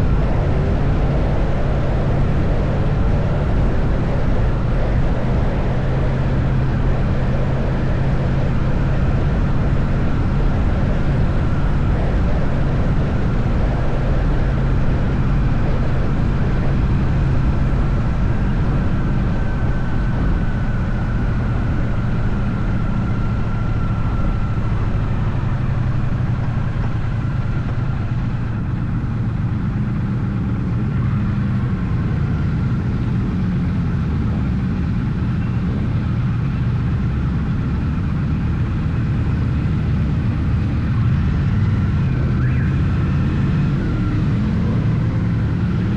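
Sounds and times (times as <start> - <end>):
motorcycle engine cruising: 0.0 - 45.9
wind and road noise: 0.0 - 45.9.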